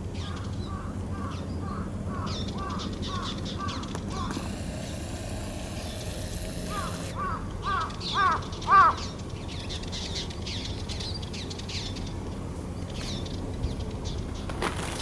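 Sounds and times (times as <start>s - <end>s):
faint high twitters of small birds: 6.7s - 14.6s.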